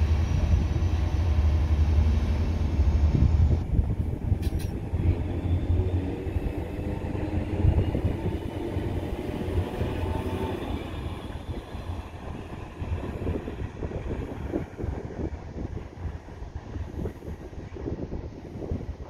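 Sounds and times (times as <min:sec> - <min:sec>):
diesel train rumbling past: 0:00.0 - 0:19.0
brief click: 0:04.4 - 0:04.8.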